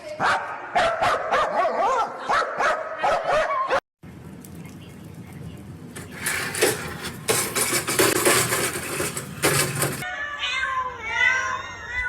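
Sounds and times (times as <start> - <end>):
hard objects clattering: 6.0 - 10.1.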